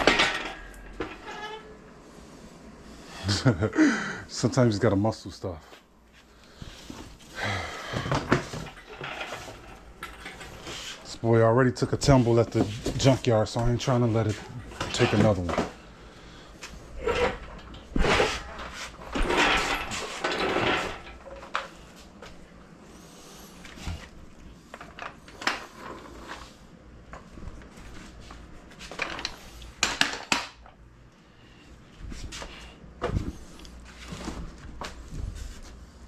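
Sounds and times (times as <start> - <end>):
metal clanks and knocks: 0.0 - 1.6.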